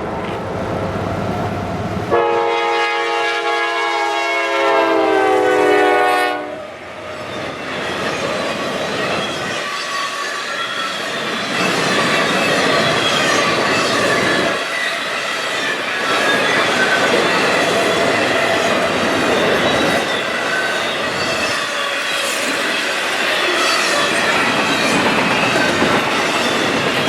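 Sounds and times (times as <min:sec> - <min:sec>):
train rolling over rails: 0:00.0 - 0:02.2, 0:07.0 - 0:27.0
wheels squealing: 0:07.1 - 0:27.0.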